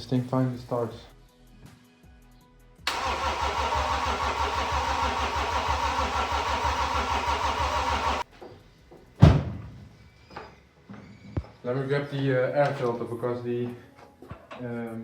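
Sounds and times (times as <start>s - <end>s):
starter motor cranking engine: 2.9s - 8.2s
loud thump: 9.2s - 9.9s.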